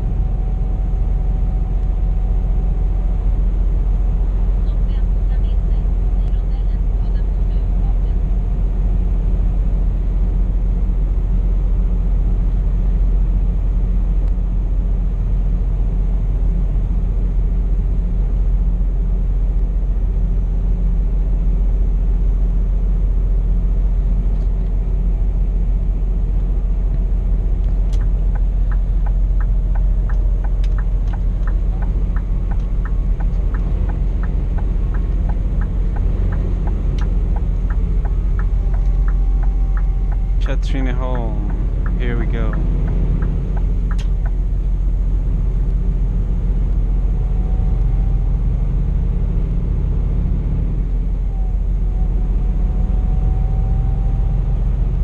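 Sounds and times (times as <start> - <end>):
diesel engine running: 0.0 - 55.0
road rumble: 0.0 - 55.0
regular ticking: 27.8 - 44.5.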